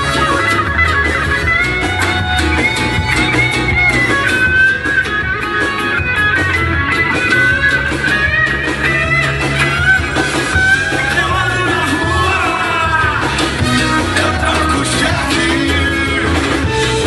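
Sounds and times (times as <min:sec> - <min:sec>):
reggae band playing: 0:00.0 - 0:17.0.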